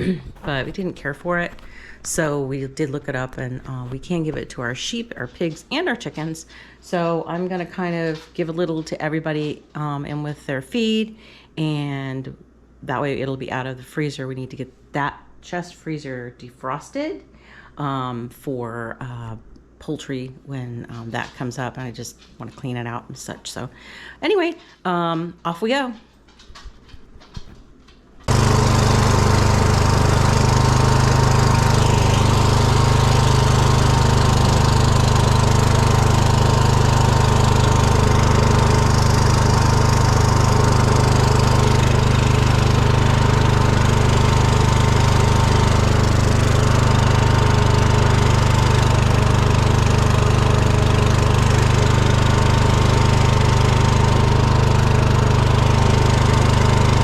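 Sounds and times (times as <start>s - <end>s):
small engine running: 0.0s - 5.3s, 28.3s - 57.0s.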